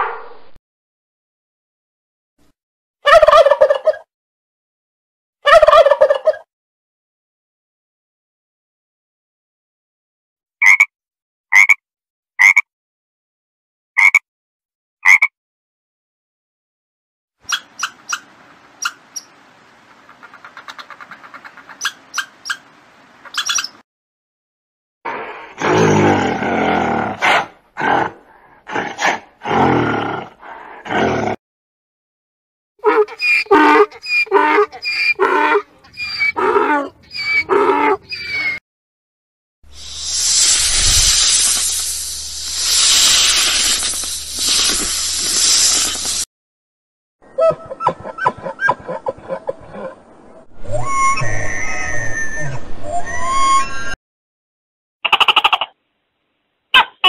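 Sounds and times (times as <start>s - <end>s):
squirrel chirping barks: 17.5s - 19.3s
snake hissing: 39.7s - 46.3s.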